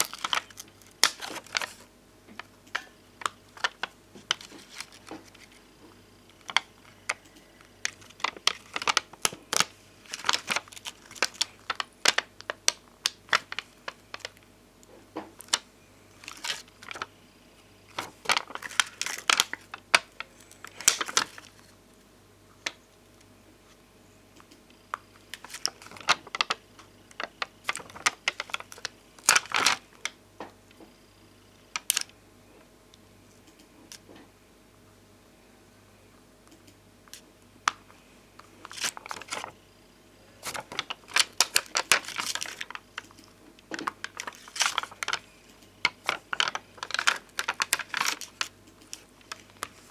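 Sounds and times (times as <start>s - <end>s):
stickers clicking and crinkling: 0.0s - 5.6s, 6.3s - 14.4s, 15.2s - 17.1s, 17.9s - 21.7s, 25.3s - 30.2s, 31.8s - 32.1s, 36.5s - 39.6s, 40.4s - 49.9s.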